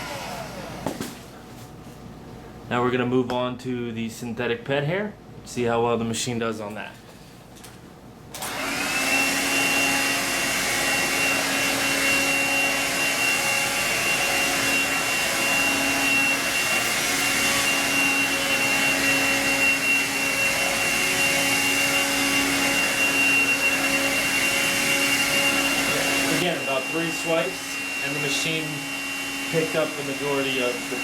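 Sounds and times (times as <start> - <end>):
vacuum cleaner motor whine: 0.0 - 1.3, 8.4 - 31.0.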